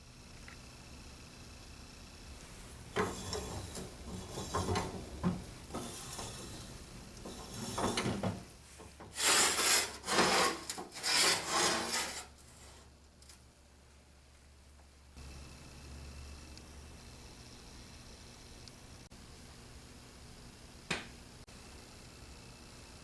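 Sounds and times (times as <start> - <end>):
rough rubbing and scraping by hand: 2.4 - 12.9.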